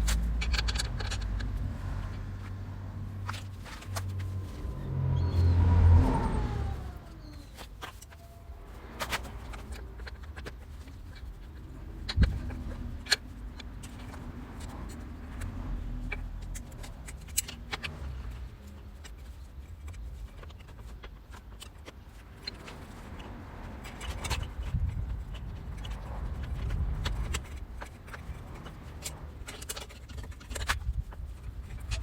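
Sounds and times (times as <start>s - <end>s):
low steady rumble: 0.0s - 21.4s.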